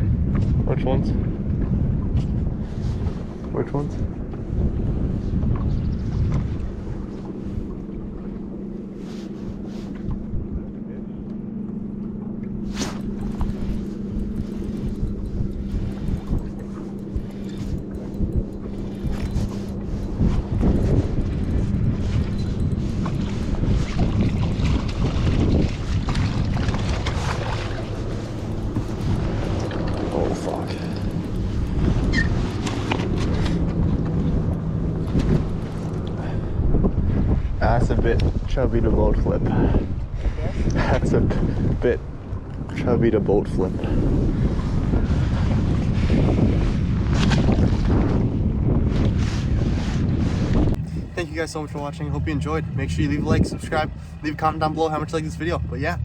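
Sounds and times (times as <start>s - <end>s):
boat motor running: 0.0s - 56.0s
wind on microphone: 0.0s - 56.0s
knocks and clunks in boat: 11.2s - 36.2s.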